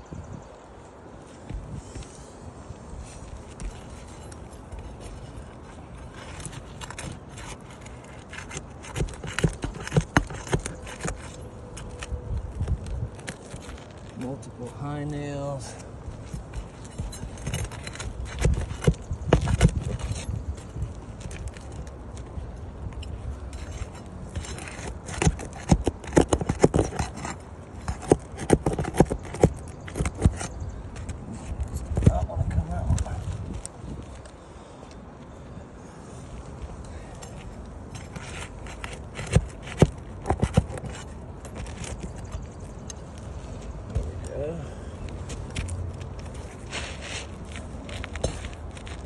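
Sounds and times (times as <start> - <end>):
metal pry tool scraping shingles: 3.0 - 12.2, 15.6 - 21.9, 23.0 - 32.3, 37.2 - 43.0.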